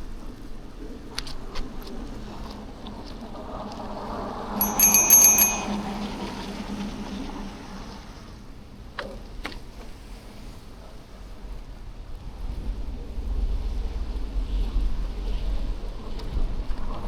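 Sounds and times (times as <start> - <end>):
bicycle bell trill: 4.6 - 6.5.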